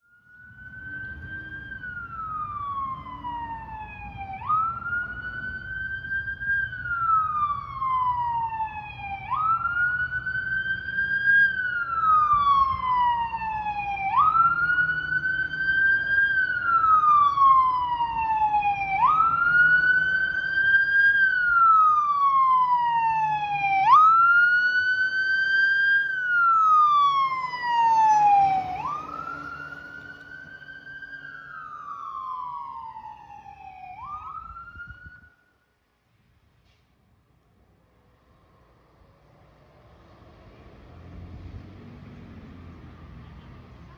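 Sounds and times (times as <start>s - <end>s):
fire engine siren wailing: 0.0s - 35.6s
truck engine rumble: 0.3s - 34.7s.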